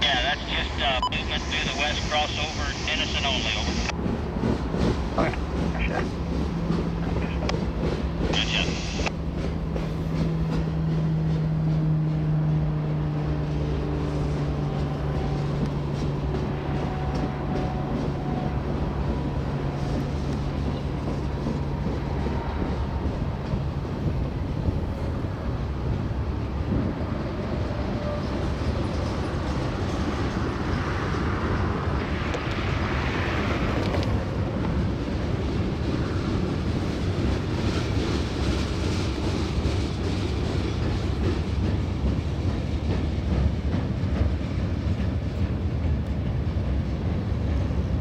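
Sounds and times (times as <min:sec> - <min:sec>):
diesel locomotive engine drone: 0:00.0 - 0:48.0
freight train rumbling on track: 0:00.0 - 0:48.0.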